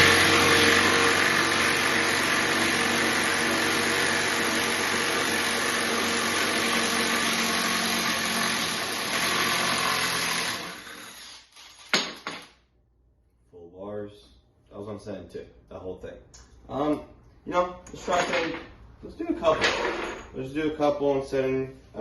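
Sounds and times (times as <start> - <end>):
impact driver running: 0.0 - 11.9.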